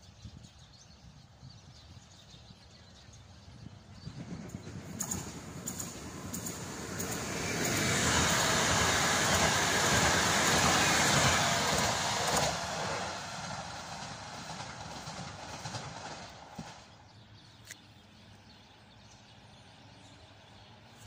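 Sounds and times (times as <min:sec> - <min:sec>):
train rushing past: 0:03.4 - 0:17.4.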